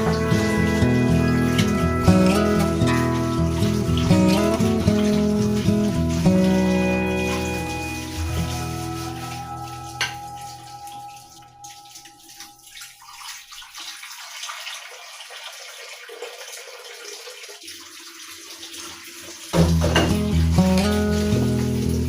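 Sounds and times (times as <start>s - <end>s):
background music: 0.0s - 12.7s, 19.6s - 22.0s
acoustic guitar music: 0.0s - 13.0s, 19.6s - 22.0s
running water: 0.0s - 22.0s.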